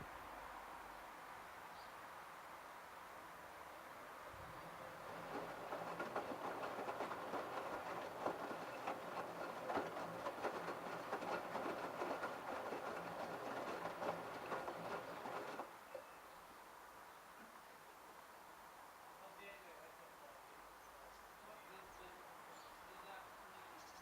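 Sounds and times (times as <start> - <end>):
washing machine motor hum: 4.6 - 15.7
washing machine drum clattering: 4.8 - 15.7.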